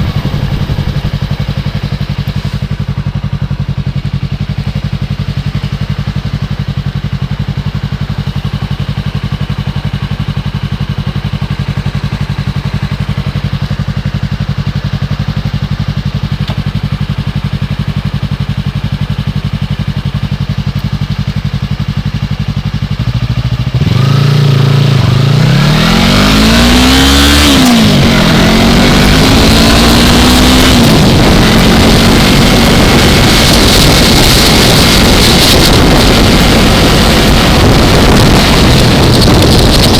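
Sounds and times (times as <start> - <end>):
wind noise on microphone: 0.0 - 3.2, 23.7 - 39.9
motorcycle engine idling and revving: 0.0 - 39.9.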